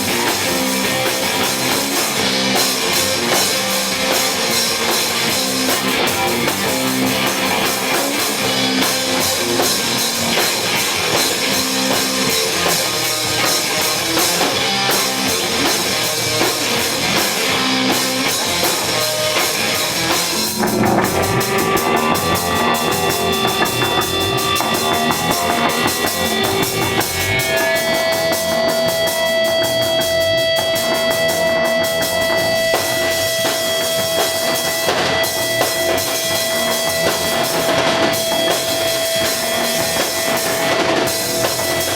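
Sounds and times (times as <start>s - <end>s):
distorted electric guitar: 0.0s - 41.9s
drum kit: 0.0s - 41.9s
long held high tone: 20.4s - 26.9s.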